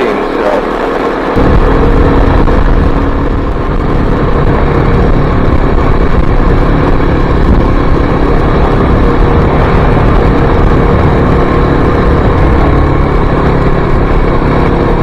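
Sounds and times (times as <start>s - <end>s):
low rumble: 0.0s - 15.0s
motorcycle engine running: 0.0s - 15.0s.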